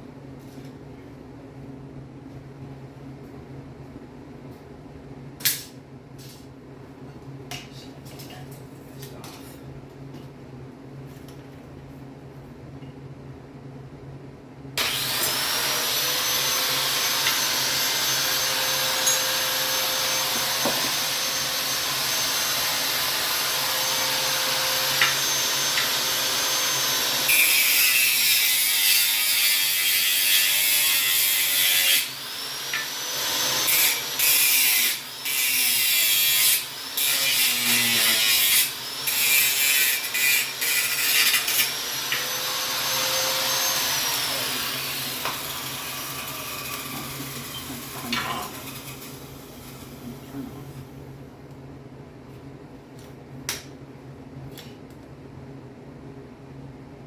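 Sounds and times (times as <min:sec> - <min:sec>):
power grinder whining: 0:14.8 - 0:50.8.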